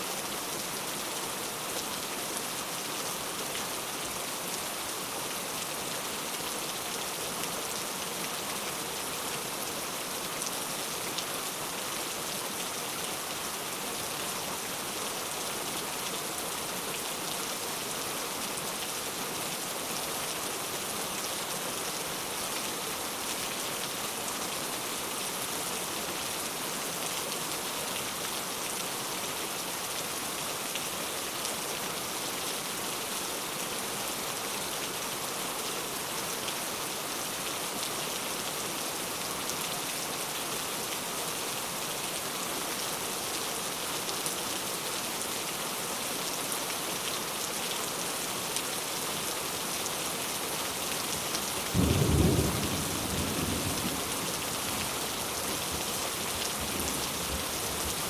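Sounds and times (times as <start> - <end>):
heavy rain hissing: 48.9 - 58.0.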